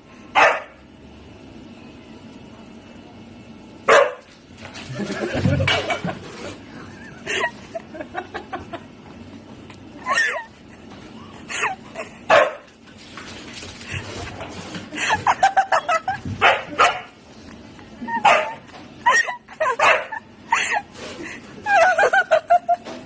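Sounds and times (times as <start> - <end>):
dog barking and yapping: 0.4 - 0.7, 3.9 - 4.3, 16.4 - 17.1, 18.2 - 18.6.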